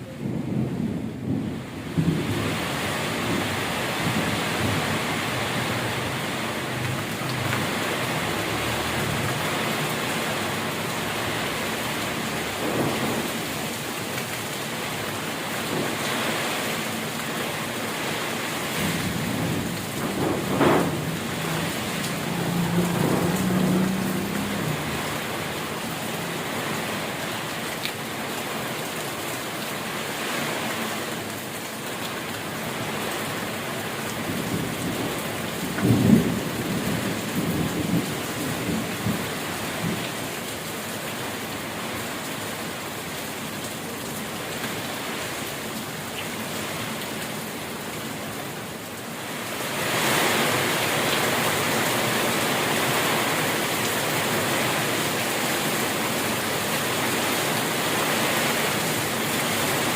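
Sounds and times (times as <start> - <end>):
thunder rumbling: 0.0 - 14.3, 18.6 - 27.2, 34.2 - 40.0
steady rain: 0.0 - 59.9.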